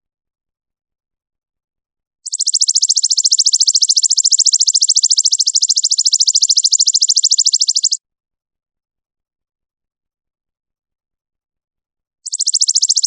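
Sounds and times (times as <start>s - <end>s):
high-pitched animal trill: 2.3s - 8.0s, 12.3s - 13.0s.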